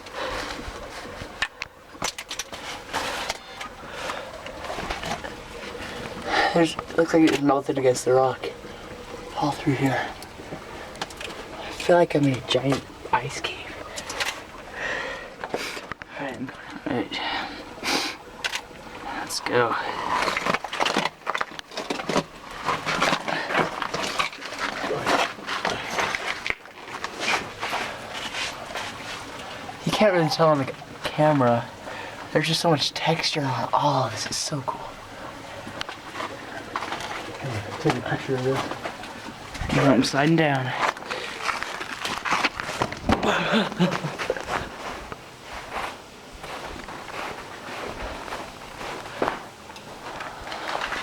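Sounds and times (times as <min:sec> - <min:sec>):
ice cracking and crunching: 0:19.9 - 0:29.6, 0:35.8 - 0:45.2, 0:49.0 - 0:51.0
scrapes and crunches on ice: 0:40.7 - 0:43.1.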